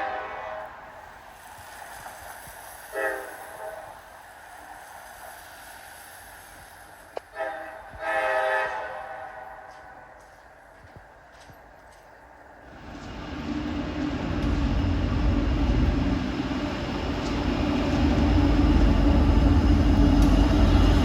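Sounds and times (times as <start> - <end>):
locomotive air horn blasts: 0.0 - 0.8, 2.9 - 4.0, 7.3 - 9.8
passing freight train: 0.0 - 21.0.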